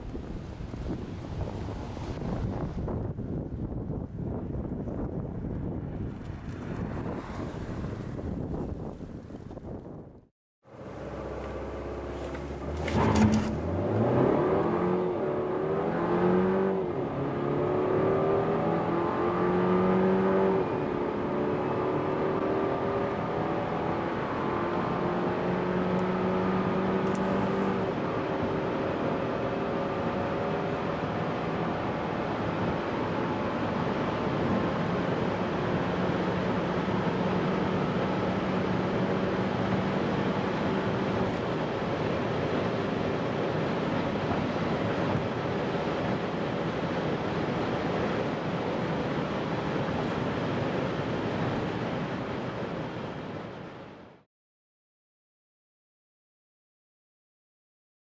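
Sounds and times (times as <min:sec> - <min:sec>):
road and wind noise: 0:00.0 - 0:54.3
car engine accelerating: 0:10.7 - 0:33.2.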